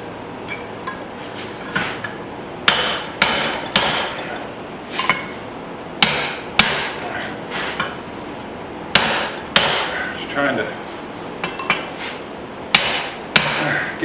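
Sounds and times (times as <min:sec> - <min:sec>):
hammer striking steel on anvil: 0:02.7 - 0:04.4, 0:06.0 - 0:07.0, 0:09.0 - 0:10.1, 0:12.7 - 0:13.8.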